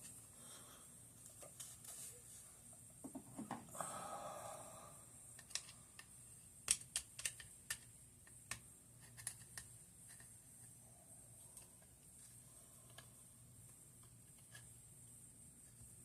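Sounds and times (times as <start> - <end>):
metal and plastic clicks: 5.4 - 10.3.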